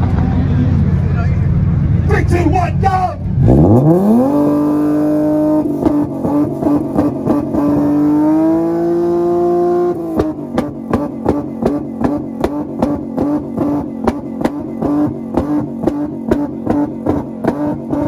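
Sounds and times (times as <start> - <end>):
car engine revving: 0.0 - 18.0
exhaust pops and bangs: 10.1 - 18.0.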